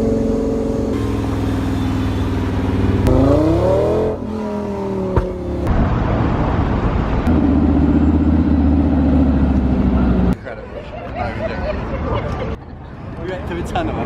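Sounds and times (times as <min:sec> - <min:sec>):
car engine revving: 0:00.0 - 0:06.1.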